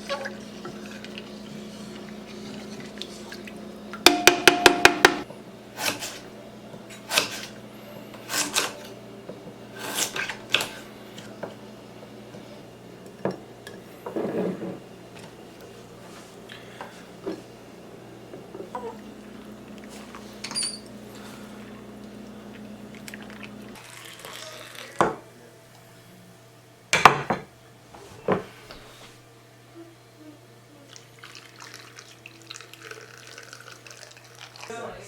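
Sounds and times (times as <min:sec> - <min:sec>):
sharp ringing taps: 0:04.1 - 0:05.2
dishes and utensils clattering: 0:13.0 - 0:15.4.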